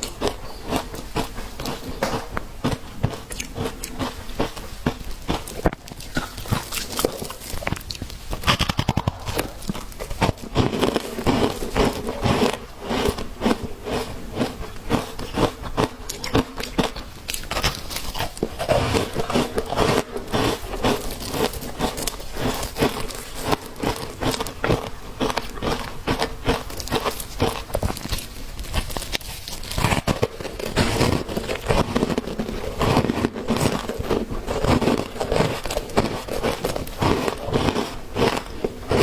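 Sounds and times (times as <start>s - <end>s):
ice being chewed: 0.0s - 39.0s.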